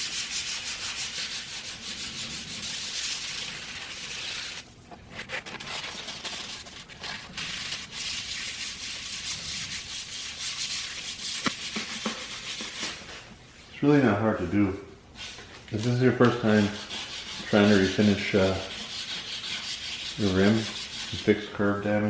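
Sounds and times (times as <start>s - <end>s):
sandpaper rubbing: 0.0s - 13.2s, 16.2s - 21.5s.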